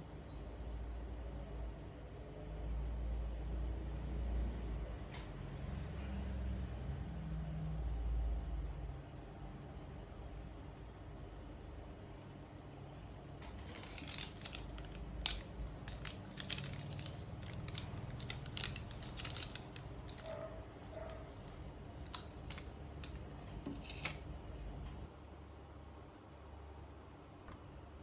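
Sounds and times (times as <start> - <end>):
low steady hum: 0.0 - 28.0
repair tools clicking and scraping: 13.4 - 24.3.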